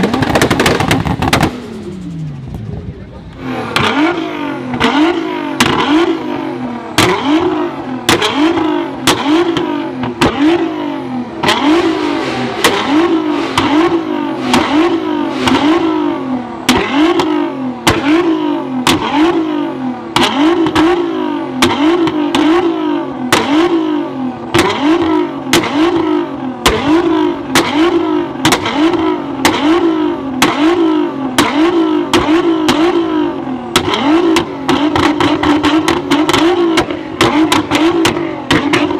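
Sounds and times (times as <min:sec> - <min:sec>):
exhaust pops: 0:00.0 - 0:02.7, 0:11.4 - 0:19.4, 0:24.5 - 0:38.9
car engine revving: 0:00.0 - 0:38.9.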